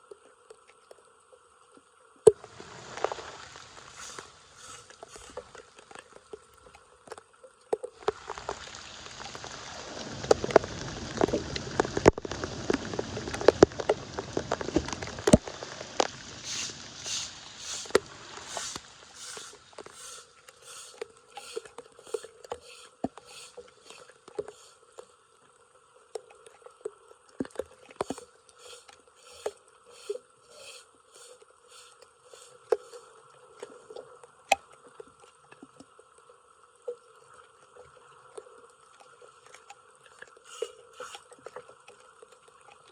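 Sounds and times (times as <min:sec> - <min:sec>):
rhythmic swishing water: 0:00.0 - 0:42.9
flood water rushing: 0:02.4 - 0:05.9, 0:08.0 - 0:24.8, 0:28.0 - 0:33.2, 0:40.5 - 0:41.3.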